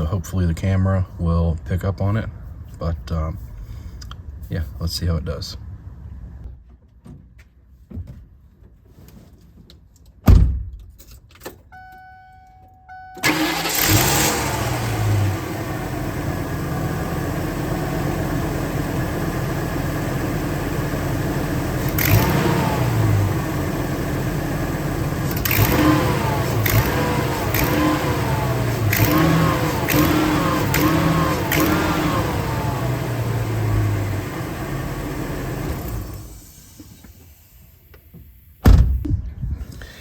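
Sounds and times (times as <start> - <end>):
heavy thump: 10.3 - 10.8, 38.6 - 39.7
short beeping tone: 11.7 - 13.2
engine cranking and idling: 13.2 - 38.1.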